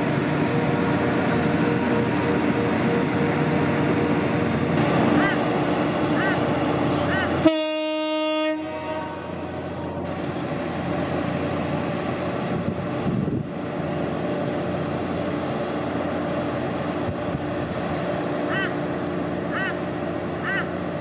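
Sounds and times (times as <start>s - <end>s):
train rumbling: 0.0s - 21.0s
train horn blast: 7.1s - 9.4s.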